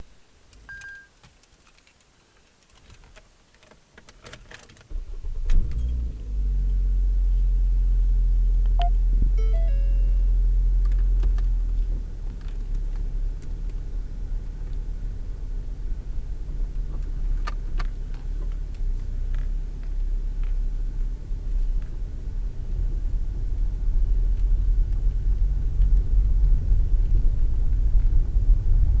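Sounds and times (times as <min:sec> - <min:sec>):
car engine starting and idling: 0:04.9 - 0:28.5
short electronic beeps: 0:08.8 - 0:10.4.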